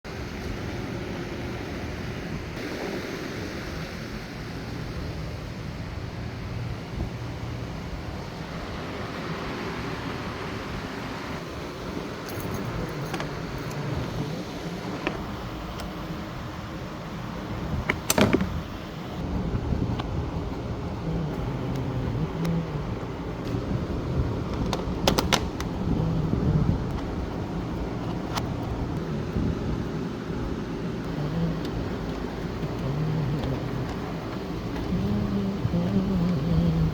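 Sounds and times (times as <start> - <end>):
low background rumble: 4.3 - 36.9
keys jangling: 12.2 - 15.1.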